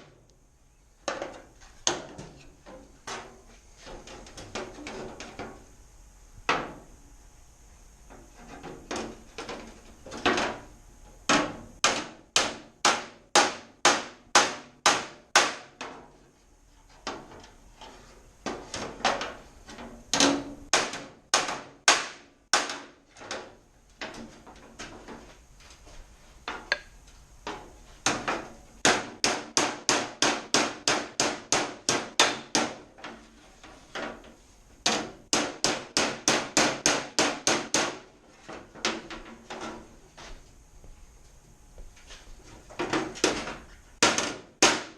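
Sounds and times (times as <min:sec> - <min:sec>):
hammer striking sheet metal: 0:20.2 - 0:23.0.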